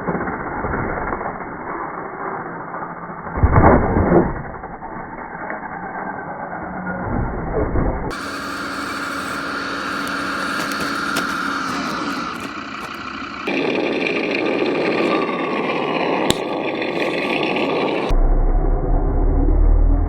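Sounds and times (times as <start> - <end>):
rough motor and driving noise: 0.0 - 20.0
model vehicle motor whine: 8.1 - 18.1.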